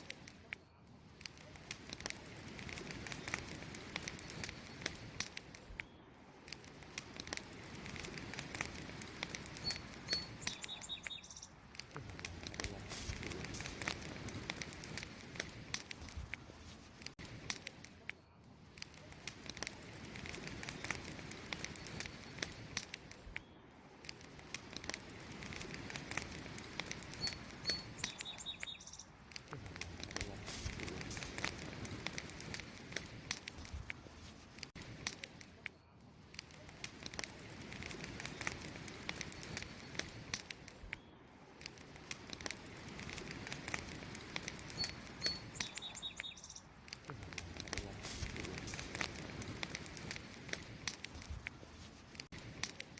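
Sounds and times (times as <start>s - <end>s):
campfire crackling and popping: 0.0s - 52.9s
bird chirp: 9.6s - 11.6s, 27.1s - 29.2s, 44.7s - 46.7s.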